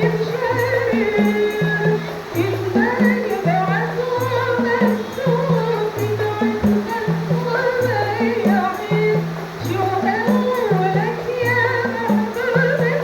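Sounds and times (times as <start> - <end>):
frame drum beats: 0.0 - 13.0
person singing: 0.0 - 13.0.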